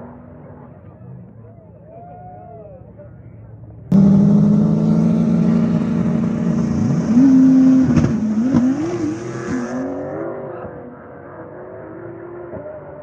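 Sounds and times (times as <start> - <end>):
racing car engine revving: 3.9 - 13.0.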